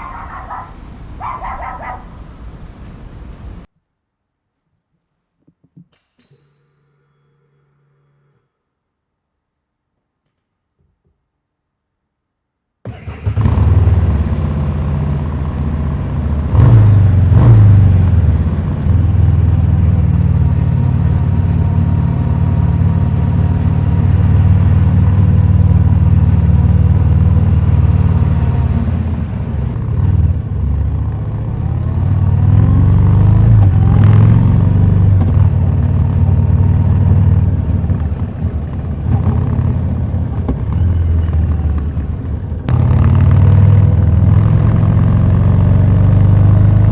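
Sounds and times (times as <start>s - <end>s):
motorcycle engine running: 12.9s - 46.9s.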